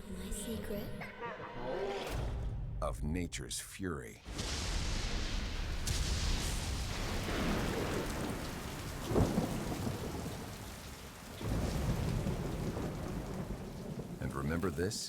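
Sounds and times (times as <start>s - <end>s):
thunder crack: 4.3s - 14.8s
thunder rumble: 4.3s - 14.8s
heavy rain: 4.3s - 15.0s.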